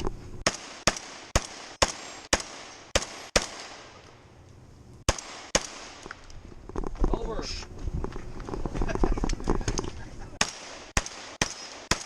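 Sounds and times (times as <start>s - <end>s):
shotgun shots: 0.4s - 4.0s, 5.1s - 6.2s, 10.4s - 12.0s.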